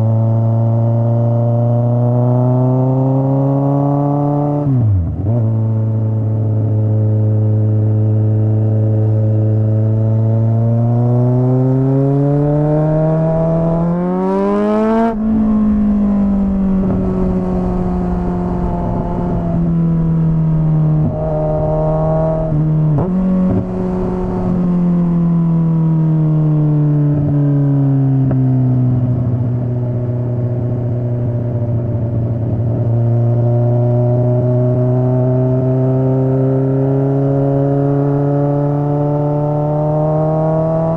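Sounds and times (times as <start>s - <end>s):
motorcycle exhaust revving: 10.5s - 27.3s.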